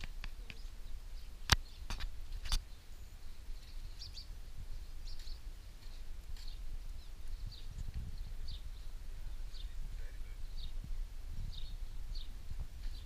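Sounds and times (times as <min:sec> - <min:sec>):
faint bird chirps: 0:00.4 - 0:13.0.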